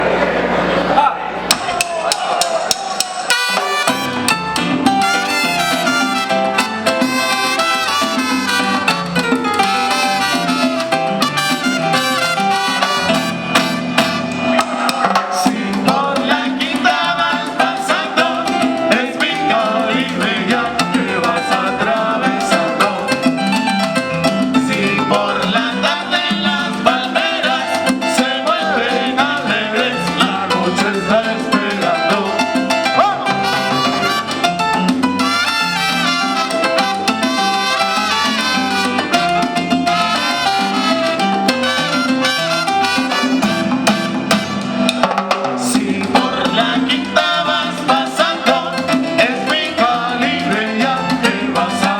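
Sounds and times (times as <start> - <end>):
salsa band playing through speakers: 0.0 - 51.9
trumpets: 3.2 - 15.4, 32.9 - 45.7.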